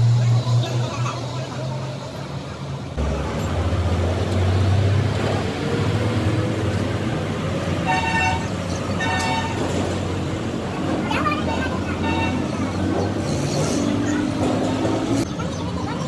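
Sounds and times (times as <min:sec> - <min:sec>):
vehicle engine running: 0:00.0 - 0:16.0
vehicle horn tooting: 0:07.8 - 0:09.8, 0:11.3 - 0:12.8.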